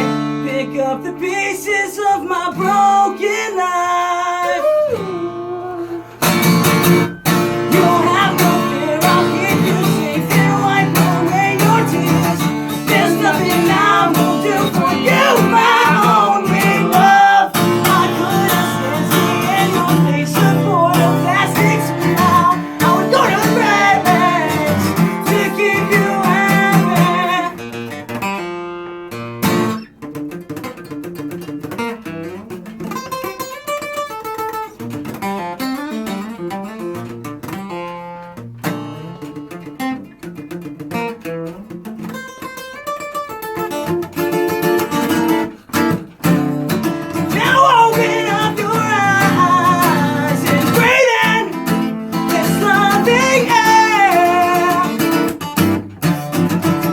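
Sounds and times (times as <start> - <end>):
acoustic guitar plucked notes: 0.0 - 56.9
person singing: 0.4 - 6.3, 7.6 - 27.7, 47.1 - 55.4.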